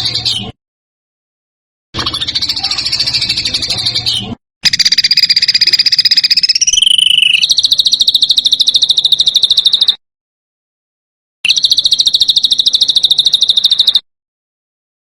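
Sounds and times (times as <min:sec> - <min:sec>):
songbird rattling trills: 0:02.0 - 0:10.0, 0:11.5 - 0:14.0.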